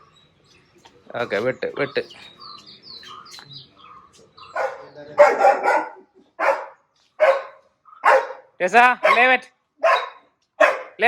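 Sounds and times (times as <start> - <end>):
small birds chirping faintly: 0.0 - 11.0
dog barking: 4.5 - 11.0.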